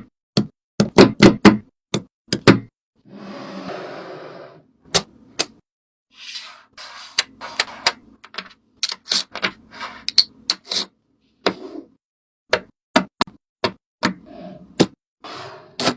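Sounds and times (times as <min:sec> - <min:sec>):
sharp clicks and taps: 0:00.4 - 0:02.6.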